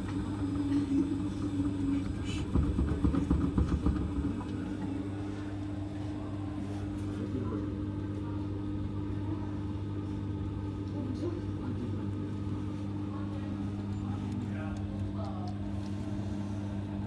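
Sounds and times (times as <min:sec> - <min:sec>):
washing machine motor humming: 0:00.0 - 0:17.0
washing machine knocks: 0:01.6 - 0:04.9.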